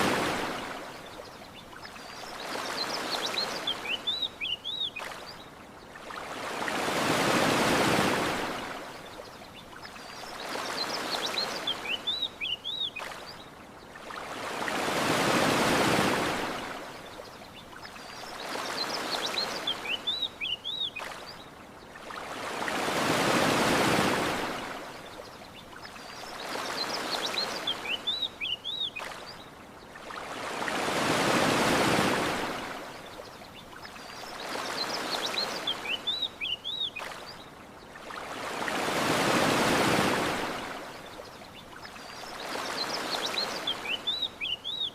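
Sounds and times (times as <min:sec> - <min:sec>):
ocean waves washing onto beach: 0:00.0 - 0:44.9
small birds chirping: 0:01.0 - 0:06.0, 0:33.0 - 0:38.0, 0:41.0 - 0:44.9.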